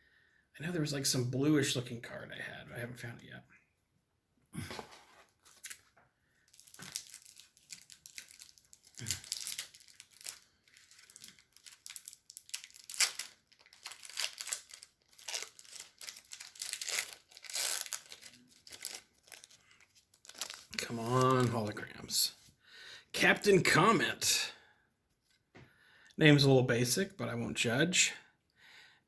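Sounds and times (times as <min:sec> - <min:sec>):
wrapper tearing and crinkling: 0:04.8 - 0:05.9, 0:06.5 - 0:21.7.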